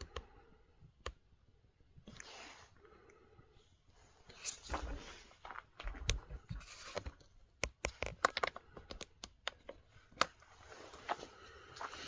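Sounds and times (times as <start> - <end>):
plastic parts clicking: 6.8 - 10.4
soft rustling: 9.8 - 12.0.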